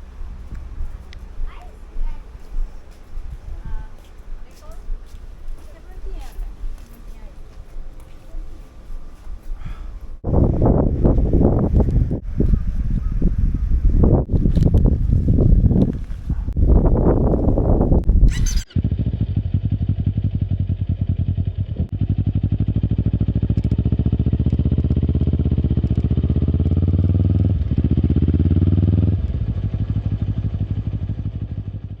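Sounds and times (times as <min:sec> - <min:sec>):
wind noise: 0:00.0 - 0:19.5
motorcycle engine running at low revs: 0:10.3 - 0:32.0.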